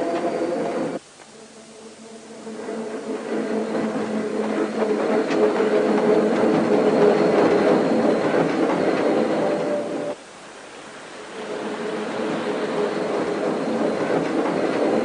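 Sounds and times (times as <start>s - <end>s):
tram motor hum: 0.0s - 10.2s, 10.8s - 15.0s
rolling wheel noise: 1.6s - 10.2s.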